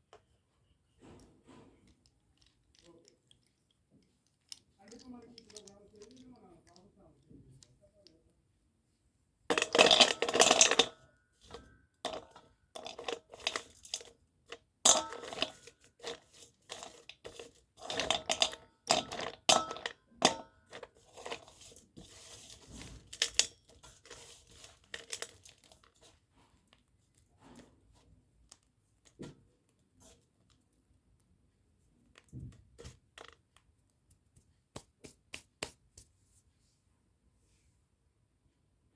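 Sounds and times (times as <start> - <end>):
slate pencils crackling and snapping: 1.8 - 8.2, 9.5 - 11.0, 11.6 - 27.7.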